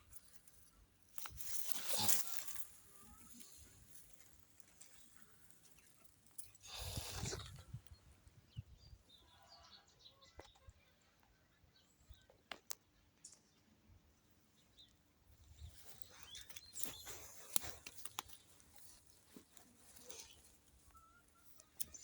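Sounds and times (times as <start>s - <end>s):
soil rustling and scraping: 0.0s - 8.0s, 15.5s - 22.0s
faint bird chirps: 2.0s - 22.0s.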